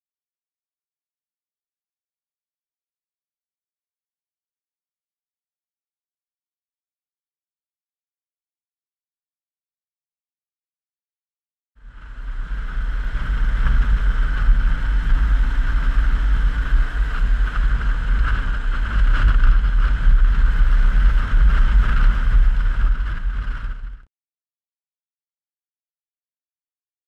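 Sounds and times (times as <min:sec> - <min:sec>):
motorcycle engine: 0:11.8 - 0:24.0
road noise: 0:11.8 - 0:24.0
wind buffeting microphone: 0:11.8 - 0:24.1.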